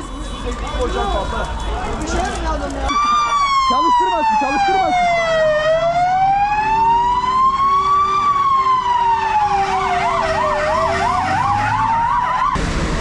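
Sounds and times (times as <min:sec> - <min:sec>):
siren wailing: 0:02.9 - 0:12.6
siren warbling: 0:02.9 - 0:12.6.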